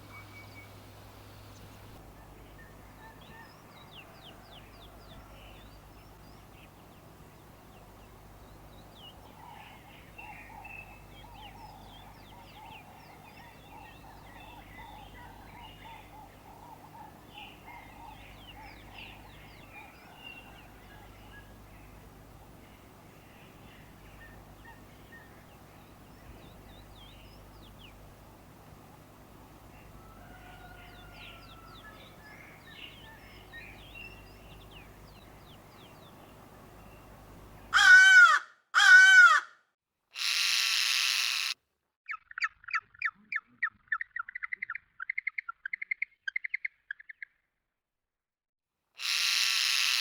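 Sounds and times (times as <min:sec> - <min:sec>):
birds chirping: 0:00.0 - 0:39.4
harsh bird calls: 0:28.8 - 0:39.5.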